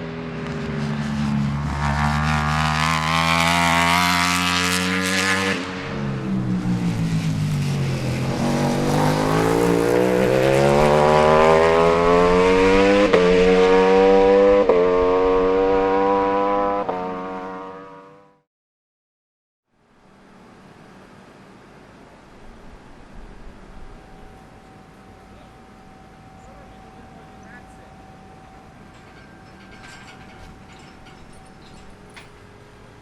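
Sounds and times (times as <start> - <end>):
motorcycle engine accelerating: 0.0 - 18.5.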